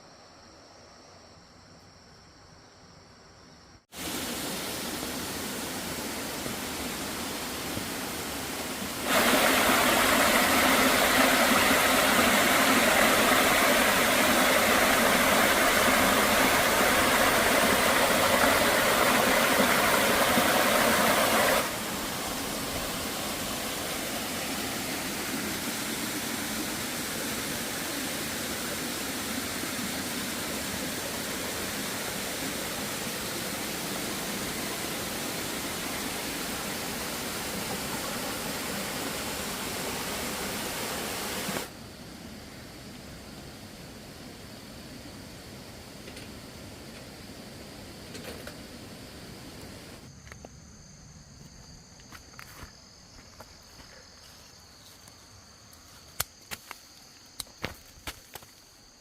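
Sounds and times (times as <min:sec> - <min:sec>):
steady rushing noise: 0:04.0 - 0:41.7.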